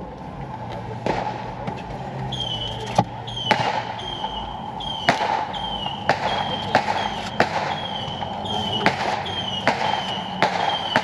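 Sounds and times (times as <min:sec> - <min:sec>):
fireworks exploding: 0:02.4 - 0:11.0.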